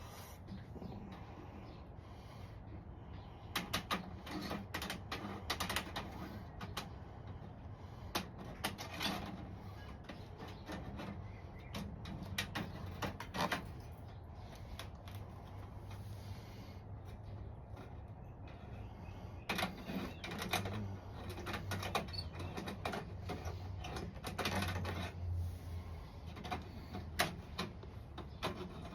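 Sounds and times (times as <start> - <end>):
sharp clicks and light knocks: 3.5 - 16.0, 19.4 - 25.4, 26.2 - 28.9.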